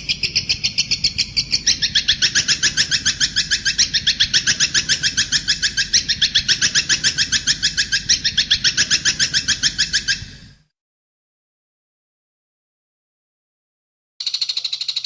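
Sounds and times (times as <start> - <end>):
songbird high chirps: 0.0 - 10.4, 14.2 - 15.0.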